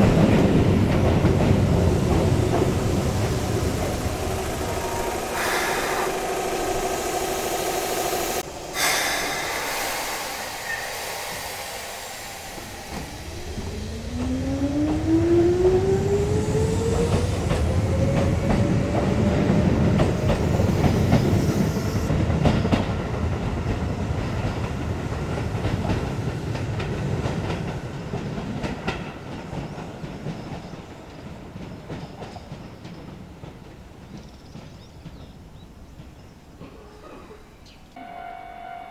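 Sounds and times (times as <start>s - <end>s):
wheel and rail noise: 0.0s - 36.4s
electric train motor whine: 1.0s - 22.1s.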